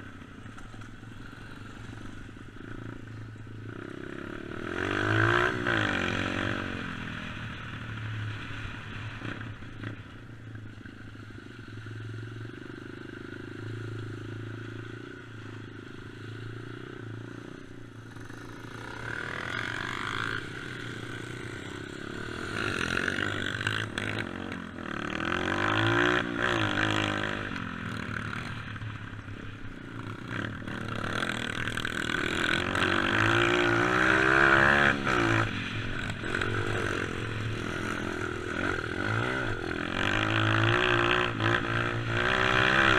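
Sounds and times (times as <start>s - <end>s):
dirt bike engine revving: 3.7s - 7.4s, 18.0s - 28.9s, 29.9s - 42.9s.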